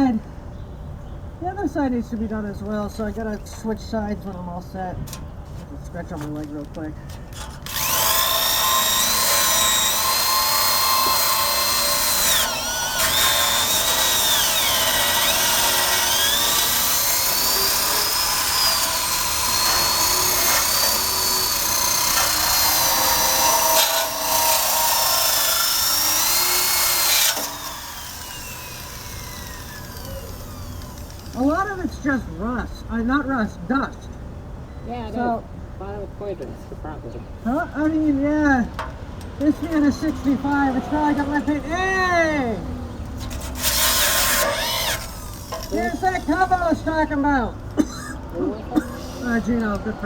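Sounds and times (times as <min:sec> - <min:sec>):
drill wire brush scrubbing metal: 0:07.4 - 0:31.7, 0:43.2 - 0:46.8
drill winding down: 0:07.4 - 0:31.8, 0:43.2 - 0:46.8.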